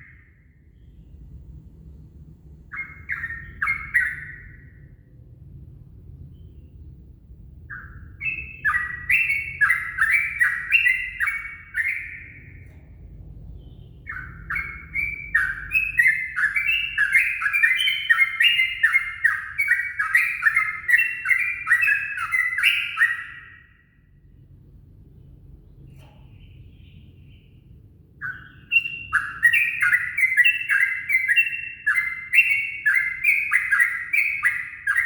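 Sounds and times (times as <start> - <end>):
bird chattering song: 0.0 - 1.1, 2.6 - 5.0, 7.6 - 24.3, 25.3 - 35.0
low rumble: 12.6 - 14.4.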